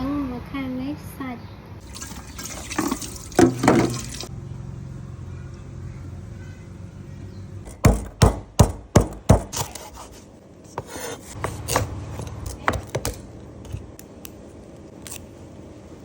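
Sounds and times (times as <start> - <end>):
knife chopping on cutting board: 7.7 - 10.1, 10.7 - 13.8.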